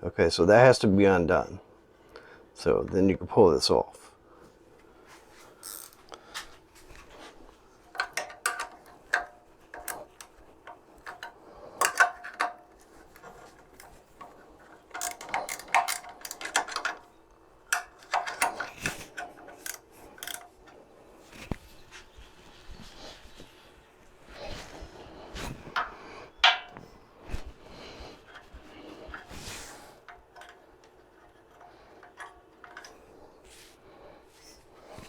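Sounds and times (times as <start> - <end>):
metal clicks and clinks of tools: 7.9 - 20.8, 30.0 - 33.0.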